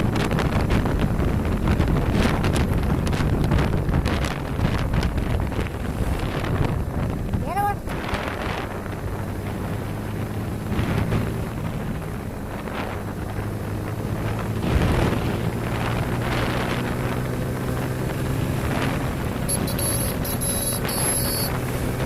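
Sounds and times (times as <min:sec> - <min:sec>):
motorcycle engine running: 0:00.0 - 0:22.0
wind buffeting microphone: 0:00.0 - 0:22.0.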